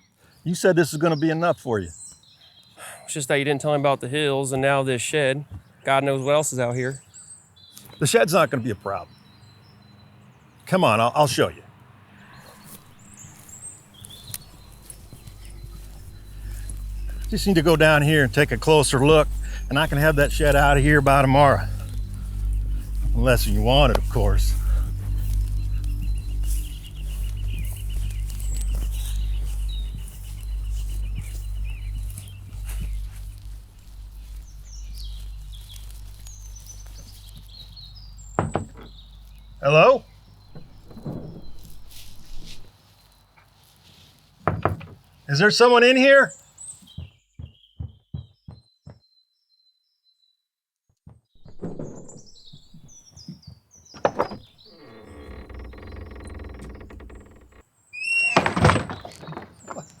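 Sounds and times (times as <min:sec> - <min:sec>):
birds chirping: 0:00.0 - 0:43.6, 0:44.5 - 0:49.0, 0:51.4 - 1:00.0
door hinges creaking: 0:14.0 - 0:39.6, 0:40.5 - 0:42.7, 0:51.4 - 0:53.0, 0:53.9 - 1:00.0
knocks on shed door: 0:38.4 - 0:39.0, 0:44.5 - 0:45.0
shed door rattling and knocking: 0:38.4 - 0:39.0, 0:40.5 - 0:42.0, 0:44.5 - 0:45.0, 0:51.4 - 0:53.0, 0:53.9 - 0:57.6, 0:58.3 - 1:00.0.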